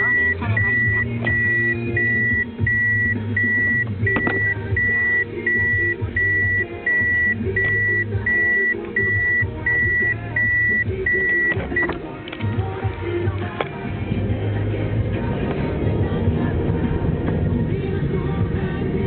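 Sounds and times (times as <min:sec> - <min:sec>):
high warning beeps: 0:00.0 - 0:12.0
music playing: 0:00.0 - 0:19.0.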